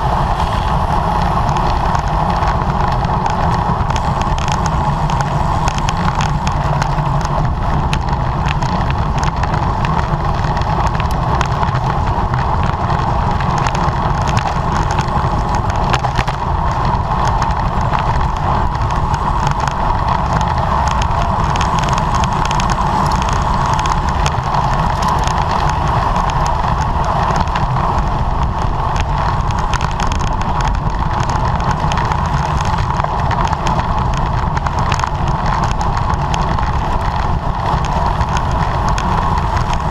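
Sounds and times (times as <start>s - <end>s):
tyres rumbling on road: 0.0s - 39.9s
wind rushing over microphone: 0.0s - 39.9s.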